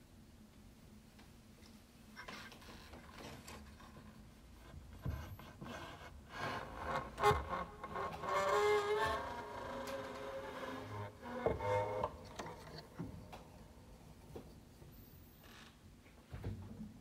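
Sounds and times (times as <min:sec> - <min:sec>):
piano fallboard wood scraping: 0:02.2 - 0:14.8.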